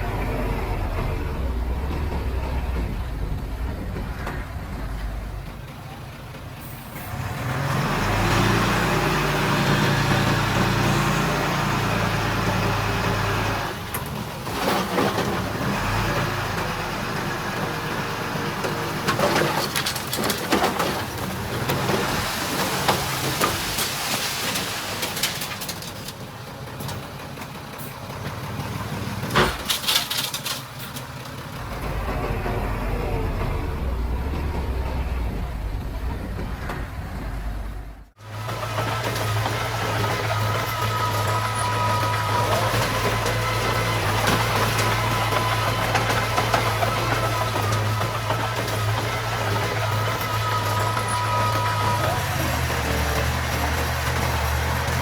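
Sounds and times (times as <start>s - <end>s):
diesel engines droning: 0.0s - 55.0s
clanking and rattling: 19.0s - 27.6s, 29.2s - 55.0s.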